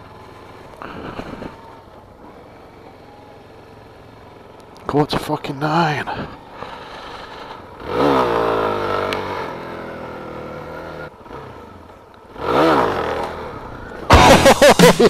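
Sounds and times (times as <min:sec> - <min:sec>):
motorcycle engine revving: 0:06.3 - 0:15.0
loud guitar rock music: 0:14.1 - 0:15.0.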